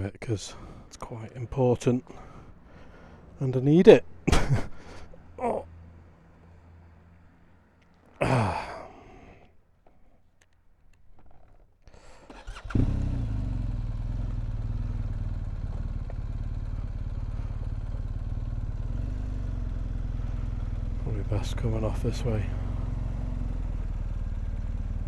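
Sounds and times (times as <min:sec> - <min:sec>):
motorcycle engine cranking and idling: 0:09.8 - 0:25.0.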